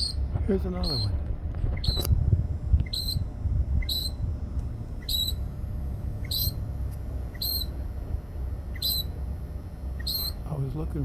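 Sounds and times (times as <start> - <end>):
wind rumble on microphone: 0.0 - 6.6
songbird two-part call: 2.8 - 3.2, 3.8 - 4.2, 5.0 - 5.4, 6.2 - 6.6, 7.3 - 7.7, 8.8 - 9.1, 10.0 - 10.4.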